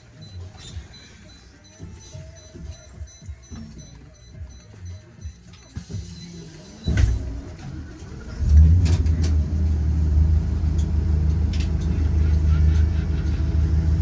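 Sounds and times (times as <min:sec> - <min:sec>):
bus low rumble: 0:05.9 - 0:14.0.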